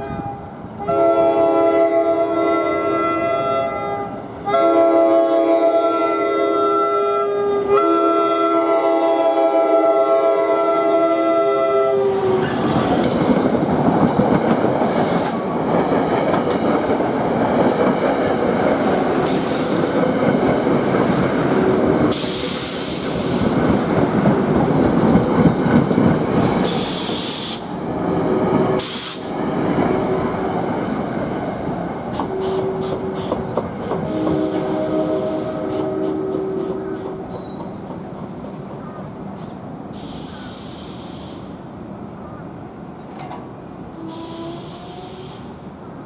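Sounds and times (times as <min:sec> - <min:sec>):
train horn chord: 0:00.0 - 0:12.6, 0:32.2 - 0:33.3, 0:34.0 - 0:37.4
wheels clicking over rail joints: 0:43.0 - 0:43.6.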